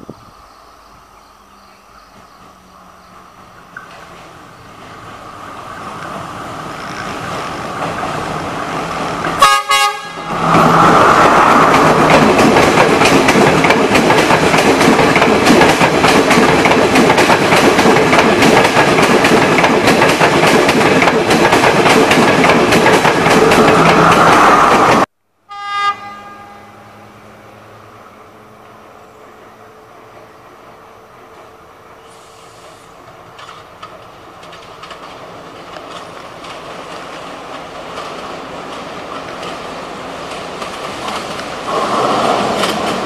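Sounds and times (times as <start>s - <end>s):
train rumbling past: 0.0s - 43.0s
train horn blast: 9.4s - 10.5s, 25.4s - 30.1s.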